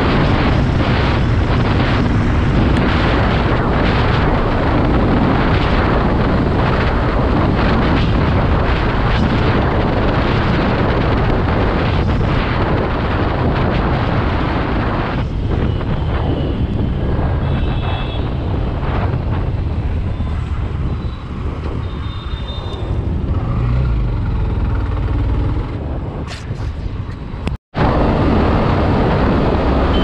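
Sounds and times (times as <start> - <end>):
wind rumble on microphone: 0.0 - 30.0
motorcycle engine at top speed: 21.0 - 26.0.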